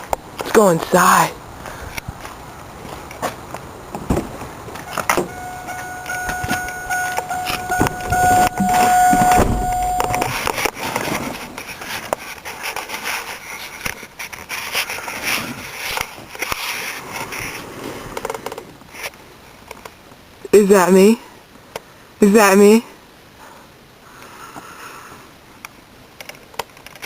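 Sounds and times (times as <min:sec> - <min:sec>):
car warning tone: 0:04.9 - 0:10.5
car door opening: 0:04.9 - 0:10.6
rustling and knocking in seat: 0:05.1 - 0:12.2.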